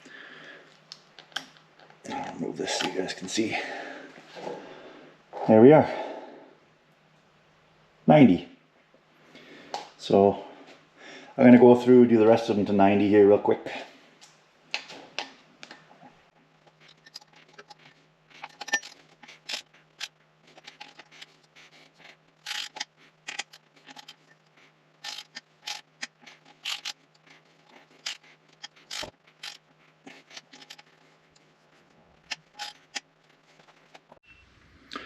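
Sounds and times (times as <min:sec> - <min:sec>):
hand ratchet clicking: 0:22.4 - 0:24.3, 0:25.0 - 0:29.6.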